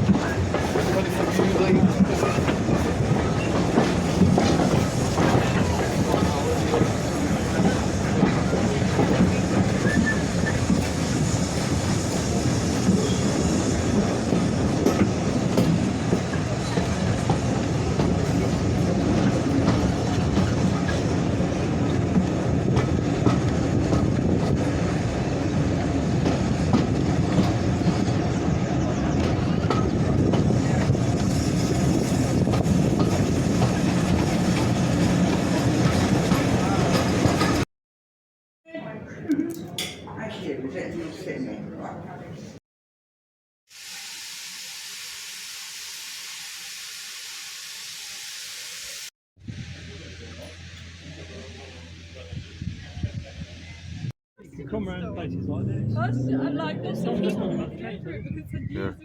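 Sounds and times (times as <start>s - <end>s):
train wheels clattering over rail joints: 0.0s - 12.1s, 13.8s - 28.3s
train rumbling: 0.0s - 37.7s, 49.4s - 59.0s.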